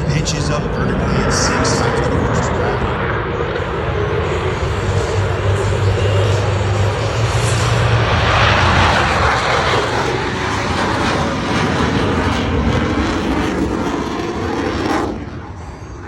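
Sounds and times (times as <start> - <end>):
jet aircraft engines roaring overhead: 0.0 - 16.0.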